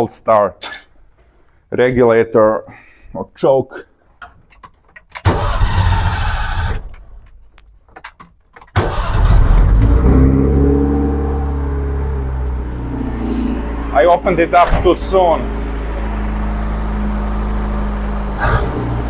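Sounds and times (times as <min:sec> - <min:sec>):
car engine starting and idling: 0:05.2 - 0:07.2, 0:08.7 - 0:19.0.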